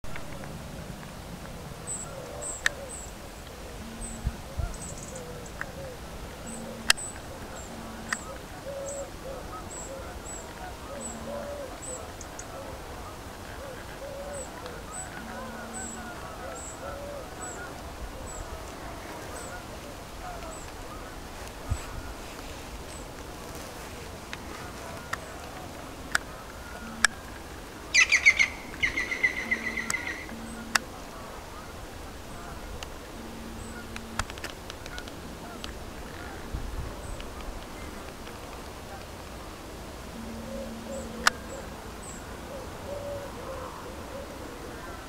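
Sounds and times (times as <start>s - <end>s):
birds hooting: 0.1s - 45.0s
bird chattering: 2.4s - 12.6s, 26.2s - 30.9s, 40.2s - 42.2s
faint high bird chirps: 28.0s - 30.8s, 40.2s - 42.3s
sharp clicks: 33.2s - 35.8s.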